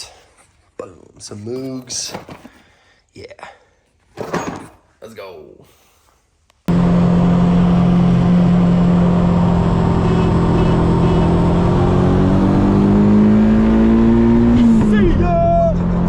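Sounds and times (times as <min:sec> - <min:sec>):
turbocharged car engine running: 0:06.7 - 0:16.0.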